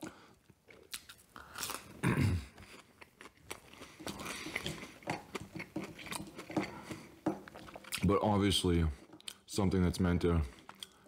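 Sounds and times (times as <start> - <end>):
chewing with wet mouth clicks: 2.6 - 8.1, 9.2 - 9.5, 10.5 - 11.0.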